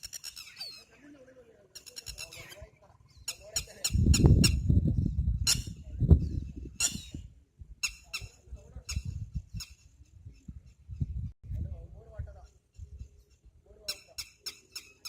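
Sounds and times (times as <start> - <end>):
water birds squeaky calls: 0.0 - 1.0, 1.7 - 4.0.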